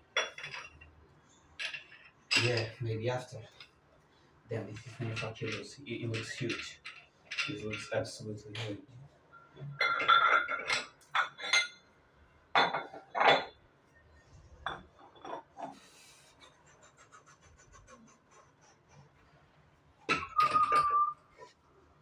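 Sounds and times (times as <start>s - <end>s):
metal dumbbells clanking: 9.7s - 11.8s, 20.1s - 21.1s.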